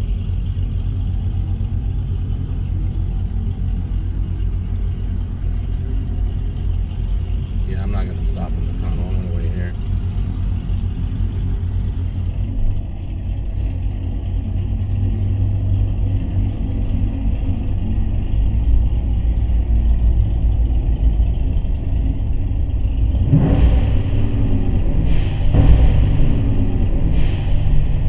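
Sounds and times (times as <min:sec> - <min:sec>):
car engines rumbling in tunnel: 0:00.0 - 0:28.0
engine revving: 0:00.0 - 0:28.0.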